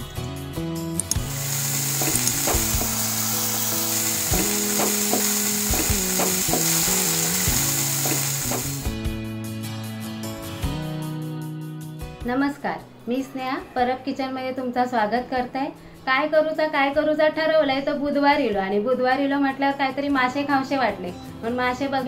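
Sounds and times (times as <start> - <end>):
background music: 0.0 - 22.0
oil sizzling in a frying pan: 1.2 - 9.1.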